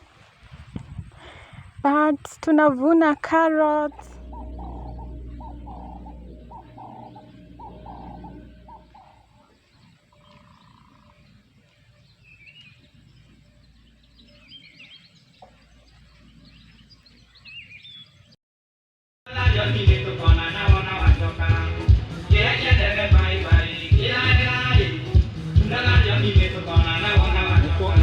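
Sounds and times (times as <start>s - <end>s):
birds calling: 2.9s - 18.4s
music: 4.2s - 8.9s, 19.3s - 28.0s.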